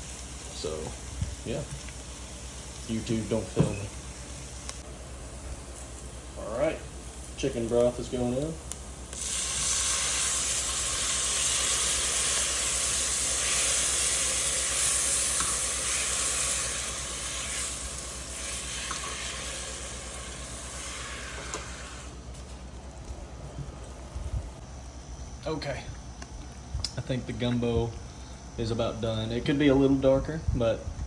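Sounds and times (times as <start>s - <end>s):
broth sizzling in a hot pot: 0.0s - 22.6s.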